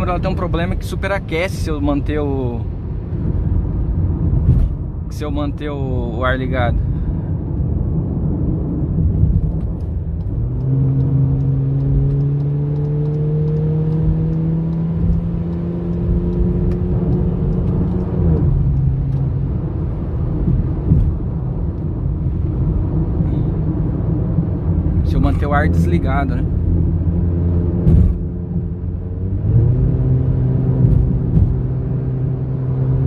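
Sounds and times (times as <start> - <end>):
road and tyre noise: 0.0 - 33.0
car engine accelerating: 8.3 - 33.0.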